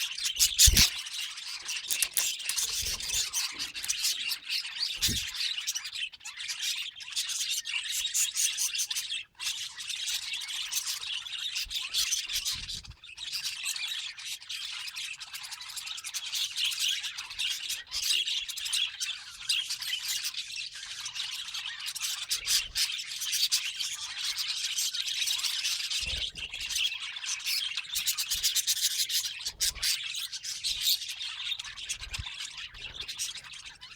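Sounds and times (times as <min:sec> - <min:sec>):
budgies chattering: 0:00.4 - 0:00.9, 0:01.8 - 0:06.4, 0:27.2 - 0:33.9.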